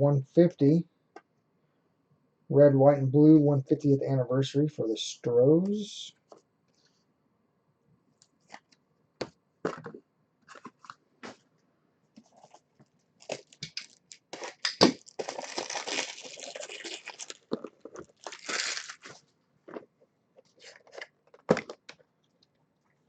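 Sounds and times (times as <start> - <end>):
foil wrapper crinkling and tearing: 13.2 - 19.2.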